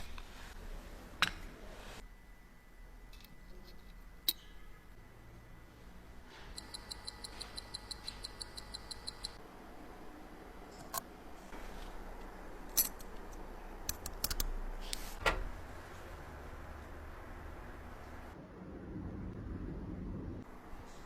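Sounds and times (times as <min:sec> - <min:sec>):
mechanical watch ticking: 0:06.5 - 0:09.4.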